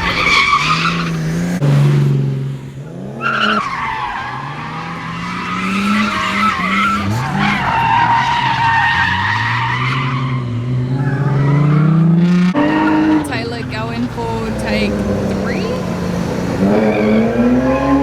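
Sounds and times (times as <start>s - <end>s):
car engine at high revs: 0.0s - 18.0s
tyres squealing: 3.3s - 10.5s.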